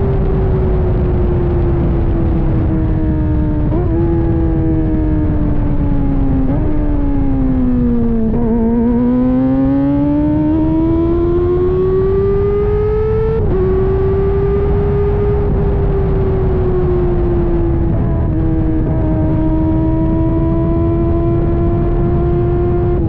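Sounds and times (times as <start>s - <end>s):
motorcycle engine revving: 0.0s - 23.0s
wind and road noise: 0.0s - 23.0s.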